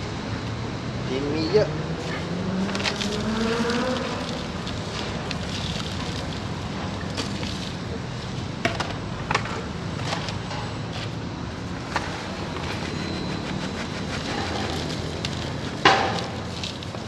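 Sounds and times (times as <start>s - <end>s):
potting soil being scooped: 2.5s - 7.8s, 12.0s - 17.0s.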